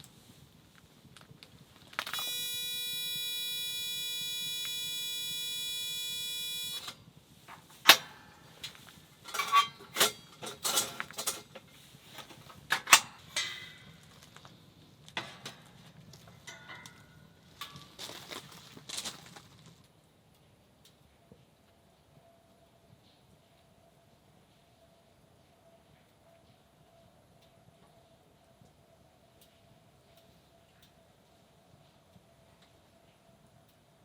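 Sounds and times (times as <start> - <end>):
electronic buzzer tone: 2.0 - 7.0.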